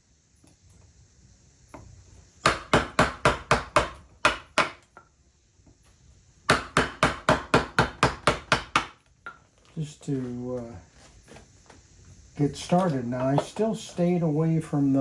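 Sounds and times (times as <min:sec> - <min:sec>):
mallet striking a gouge: 0:02.4 - 0:04.8, 0:06.5 - 0:09.0.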